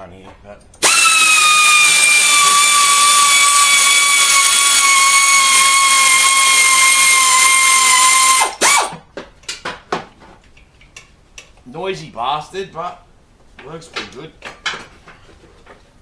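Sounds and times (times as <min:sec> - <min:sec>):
power tool motor whine: 0:00.8 - 0:09.0.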